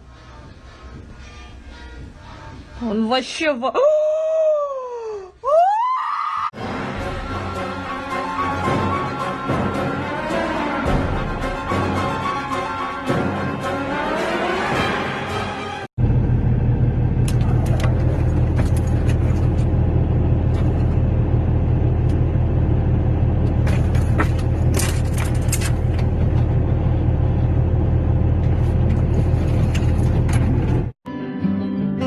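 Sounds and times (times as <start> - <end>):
loud low rumble: 16.0 - 30.9.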